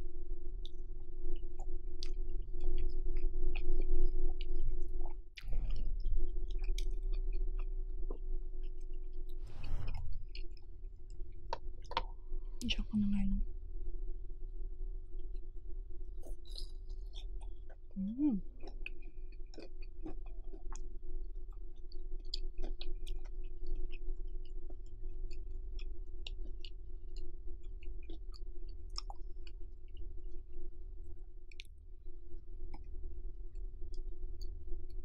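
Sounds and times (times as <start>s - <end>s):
steady low hum: 0.0s - 35.0s
person humming: 18.0s - 18.4s
close chewing: 18.6s - 20.9s.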